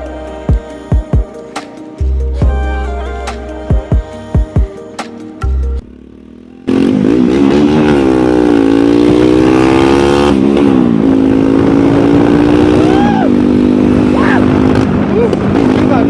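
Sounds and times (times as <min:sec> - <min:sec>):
motorcycle engine revving: 0:03.8 - 0:16.0.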